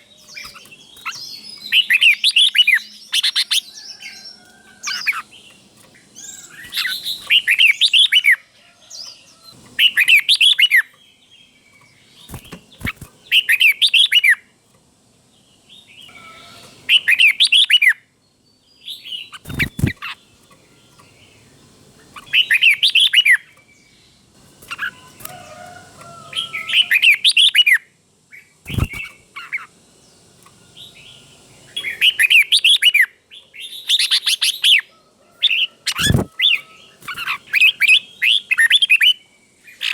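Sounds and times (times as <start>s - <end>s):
bird singing short phrases: 35.9s - 39.9s.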